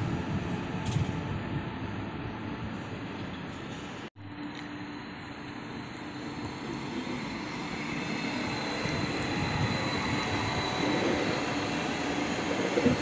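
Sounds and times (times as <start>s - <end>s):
train passing with rolling noise: 0.0s - 13.0s.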